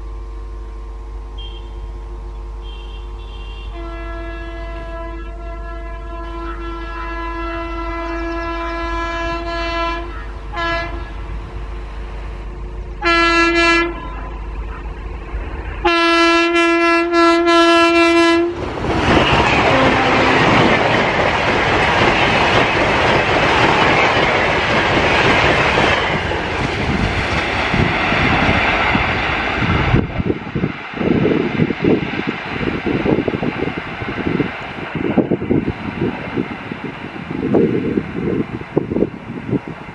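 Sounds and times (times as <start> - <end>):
train passing at speed: 0.0 - 39.9
locomotive horn blasts: 1.3 - 11.2, 13.0 - 14.8, 15.8 - 18.6, 19.2 - 20.8.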